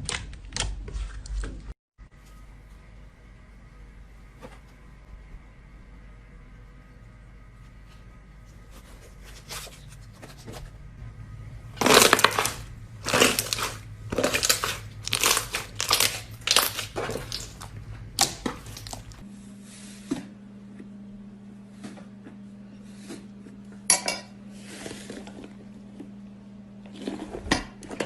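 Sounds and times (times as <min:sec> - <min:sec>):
crunchy slime squishes: 0:11.5 - 0:19.2
slime crackling: 0:11.8 - 0:19.2.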